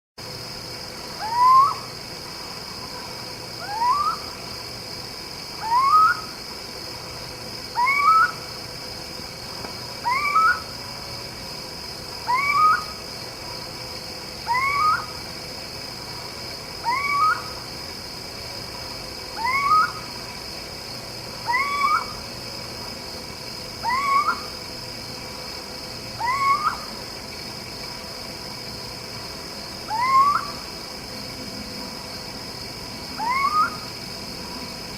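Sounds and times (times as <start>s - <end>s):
high-pitched background hiss: 0.2s - 34.9s
young owl squeaking: 10.0s - 10.6s, 12.3s - 13.0s, 14.5s - 15.1s, 16.9s - 17.5s, 23.9s - 24.5s, 26.2s - 26.9s, 33.2s - 33.8s.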